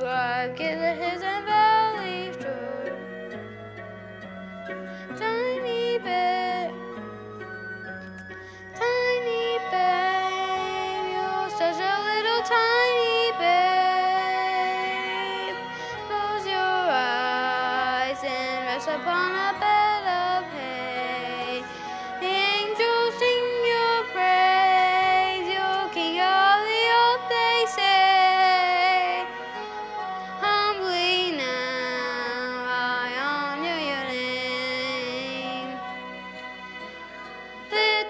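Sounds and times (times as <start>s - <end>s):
person singing a lullaby: 0.0s - 3.1s, 5.0s - 6.8s, 8.7s - 29.3s
soft instrumental accompaniment: 0.0s - 38.0s.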